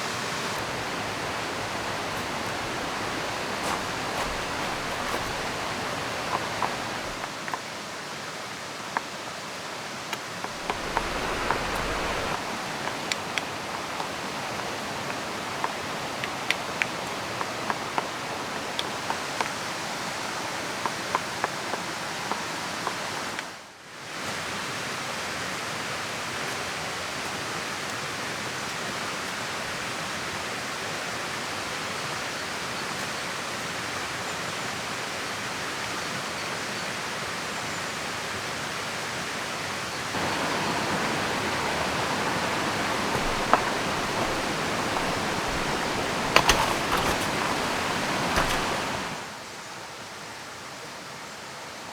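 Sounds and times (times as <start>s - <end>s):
rain falling: 0.0s - 7.6s, 10.3s - 19.0s, 40.1s - 49.4s
river flowing: 0.0s - 7.9s, 10.0s - 19.1s, 40.0s - 49.7s.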